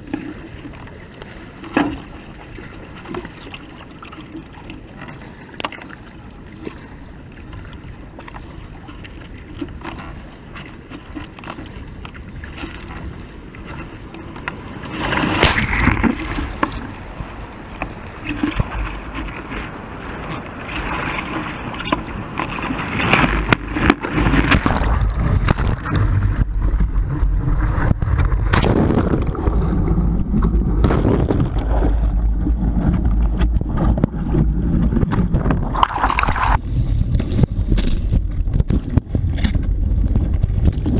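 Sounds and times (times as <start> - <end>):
wind buffeting microphone: 11.5 - 40.9
low rumble: 23.4 - 40.9.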